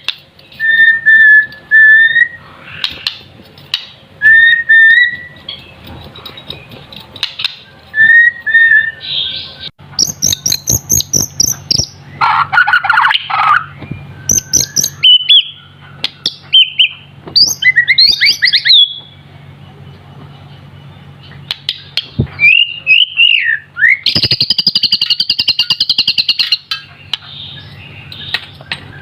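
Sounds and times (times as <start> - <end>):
bird singing whistled notes: 0.6 - 2.4, 4.2 - 5.7, 7.6 - 12.1, 13.2 - 19.2, 22.4 - 26.6.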